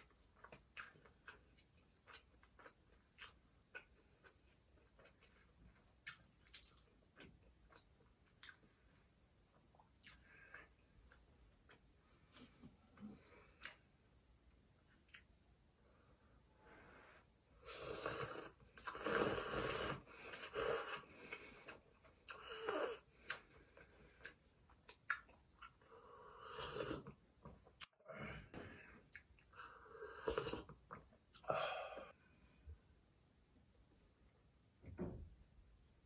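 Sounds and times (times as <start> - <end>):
slurps and mouth noises: 17.6 - 23.5.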